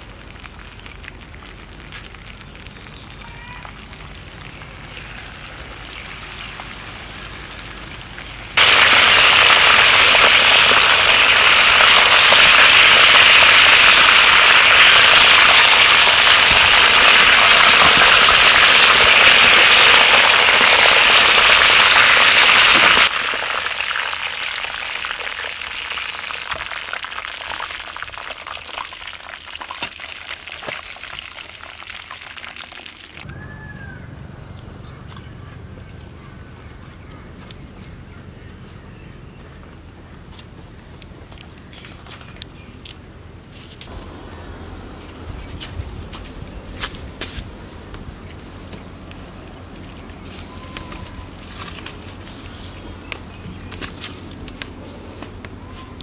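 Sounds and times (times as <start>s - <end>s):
food sizzling in hot oil: 5.3s - 33.2s.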